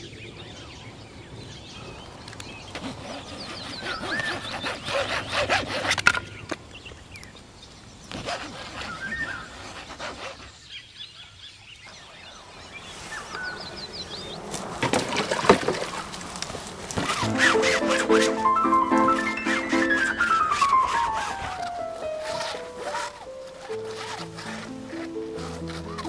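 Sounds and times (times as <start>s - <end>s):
birds chirping: 0.0s - 26.0s
clicks and rustles: 14.5s - 26.0s.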